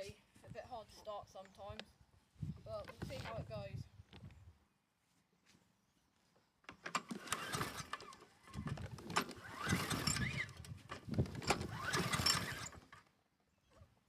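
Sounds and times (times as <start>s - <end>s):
lawnmower recoil starter whirring: 6.7s - 13.1s.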